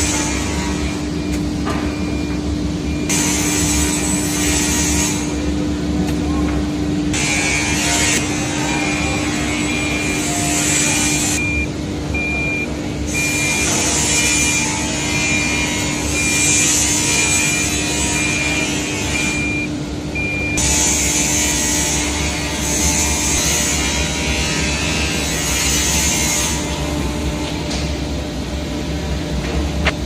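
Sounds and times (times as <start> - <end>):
milling machine motor hum: 0.0 - 30.0
short high beeps: 11.4 - 15.6, 19.2 - 20.6.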